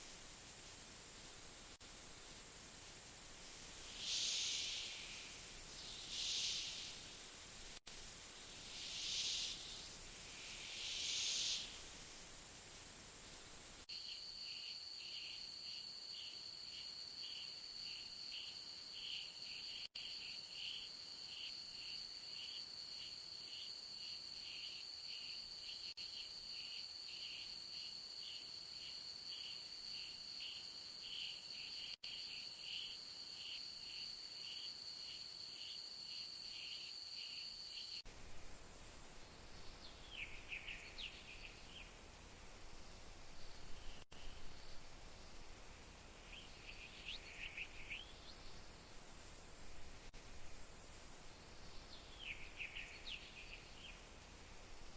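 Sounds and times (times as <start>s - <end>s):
insect pulsing call: 3.2s - 7.2s, 8.1s - 12.2s, 13.9s - 54.9s
short insect chirps: 3.2s - 7.2s, 8.2s - 12.2s, 13.9s - 45.4s, 46.2s - 54.9s
insect high-pitched trill: 3.8s - 7.0s, 8.5s - 11.8s, 46.2s - 48.9s.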